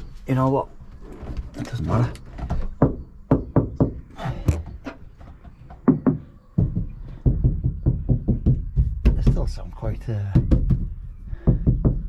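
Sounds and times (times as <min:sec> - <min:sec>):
knocking on sheet metal: 0:02.8 - 0:04.8, 0:05.8 - 0:09.7, 0:10.3 - 0:12.0.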